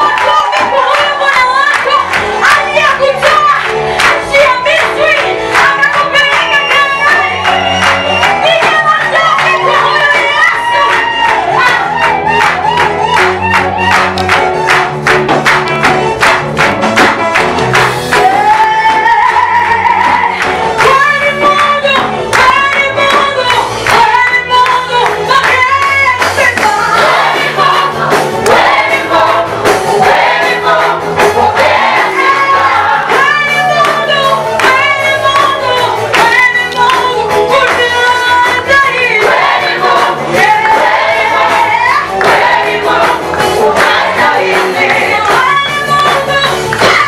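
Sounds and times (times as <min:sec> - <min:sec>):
instrumental backing with bass: 0:00.0 - 0:47.0
gospel choir singing: 0:06.4 - 0:13.8, 0:26.4 - 0:47.0.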